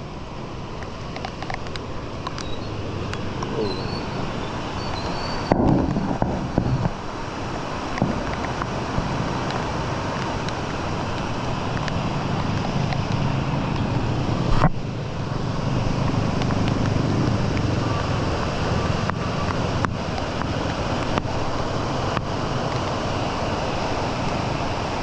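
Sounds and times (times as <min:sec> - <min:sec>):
flowing water: 0:00.0 - 0:25.0
heavy rain: 0:00.0 - 0:25.0
wind on microphone: 0:03.3 - 0:07.3.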